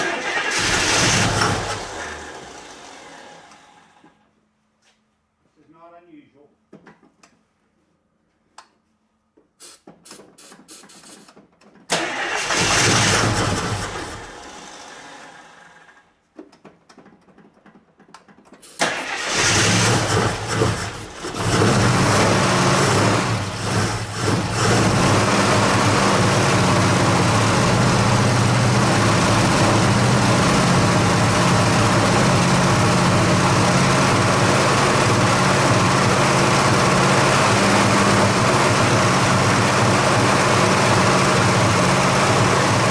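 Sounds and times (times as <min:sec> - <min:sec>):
car engine starting and idling: 0:00.0 - 0:04.2, 0:11.9 - 0:16.1, 0:18.7 - 0:42.9.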